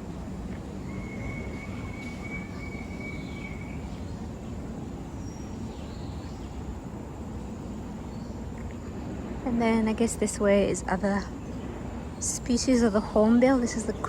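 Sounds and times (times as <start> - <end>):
birds chirping faintly: 0.0 - 14.0
low outdoor rumble: 0.0 - 14.0
thin high whistle: 0.8 - 3.9.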